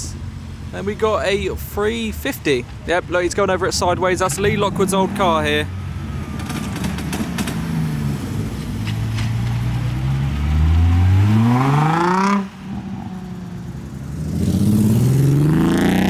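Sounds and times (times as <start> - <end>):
car engine revving: 3.4 - 16.0.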